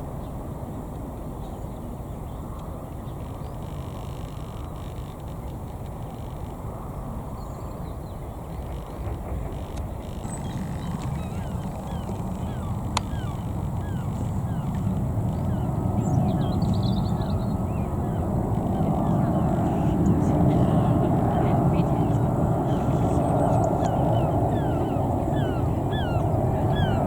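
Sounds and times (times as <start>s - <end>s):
jet engine rumble: 2.7s - 27.0s
small birds chirping: 7.0s - 27.0s.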